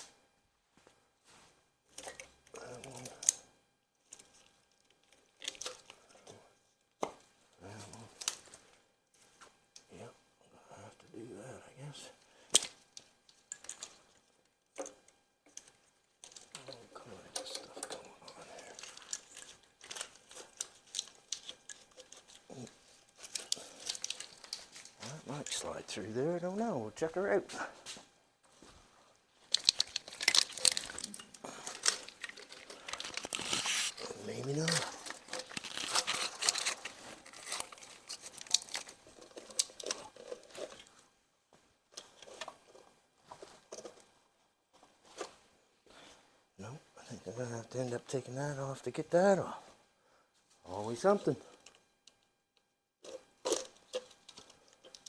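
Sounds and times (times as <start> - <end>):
tools and metal parts clinking: 1.9 - 3.4, 14.8 - 25.8, 29.4 - 40.9
rustling: 15.6 - 46.2.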